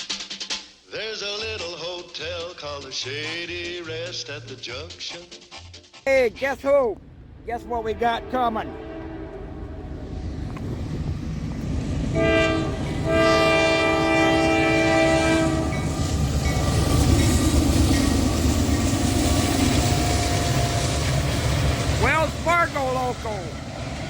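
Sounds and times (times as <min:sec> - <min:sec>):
train rumbling past: 0:06.1 - 0:24.0
locomotive air horn: 0:07.9 - 0:10.5, 0:12.1 - 0:16.0
wheels clattering on rails: 0:14.7 - 0:24.0.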